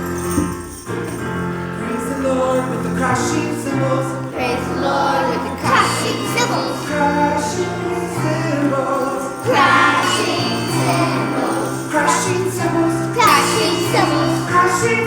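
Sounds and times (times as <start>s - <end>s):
instrumental accompaniment: 0.0s - 15.0s
children's choir singing: 1.7s - 15.0s.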